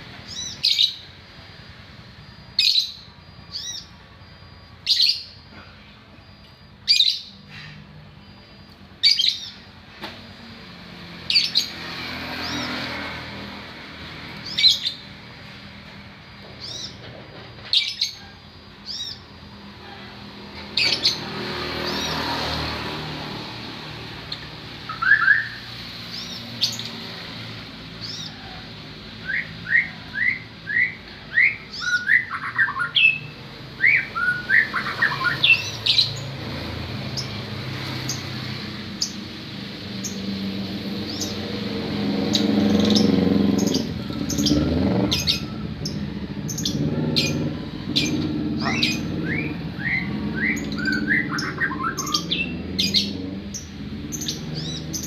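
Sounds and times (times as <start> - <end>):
songbird chirping and whistling: 0.2 - 1.1, 2.2 - 5.5, 6.8 - 7.8, 8.4 - 9.8, 16.5 - 19.3, 24.3 - 26.9, 29.2 - 36.3, 42.3 - 55.0.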